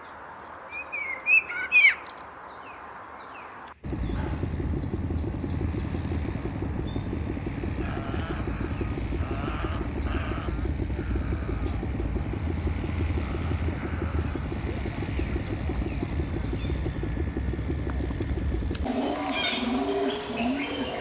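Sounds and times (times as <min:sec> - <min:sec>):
songbirds calling: 0:00.9 - 0:21.0.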